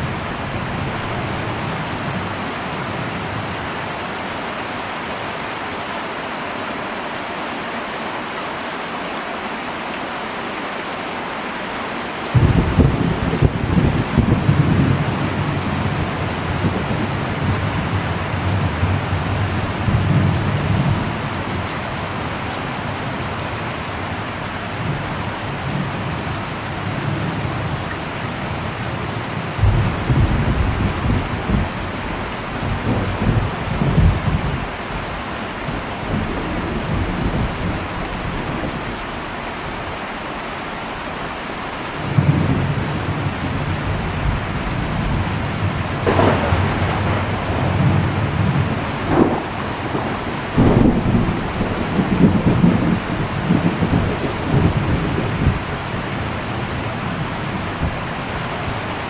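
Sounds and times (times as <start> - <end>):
heavy rain on metal roof: 0.0 - 59.0
thunder rumbling: 12.3 - 39.4, 42.0 - 59.0.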